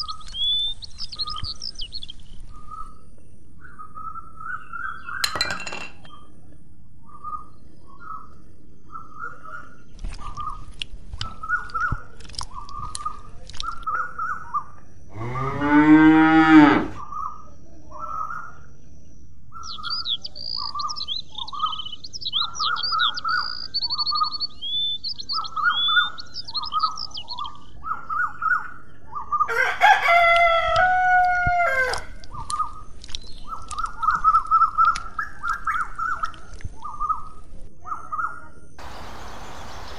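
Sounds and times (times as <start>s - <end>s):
small bird chirping: 0.0s - 5.4s, 7.1s - 15.5s, 19.5s - 29.5s, 31.9s - 39.9s
rooster crowing: 29.5s - 32.2s.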